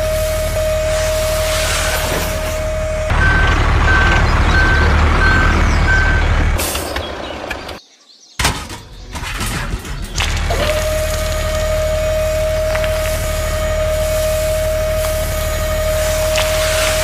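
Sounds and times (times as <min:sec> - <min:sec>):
reversing alarm beeping: 0:00.0 - 0:06.5
low engine rumble: 0:00.0 - 0:07.8, 0:09.8 - 0:17.0.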